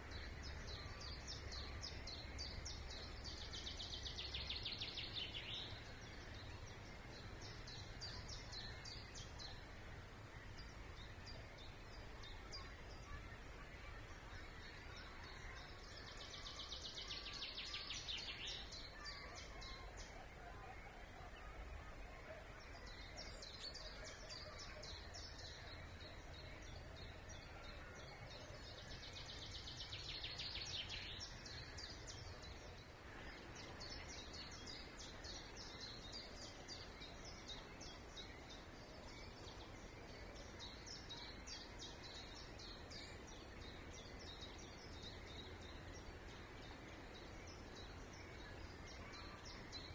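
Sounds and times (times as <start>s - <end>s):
songbirds singing: 0.0s - 49.9s.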